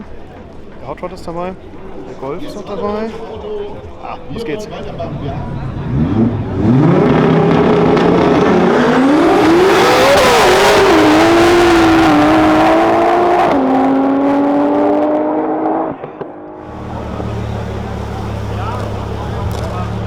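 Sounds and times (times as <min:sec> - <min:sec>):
race cars accelerating hard: 0:04.7 - 0:20.0.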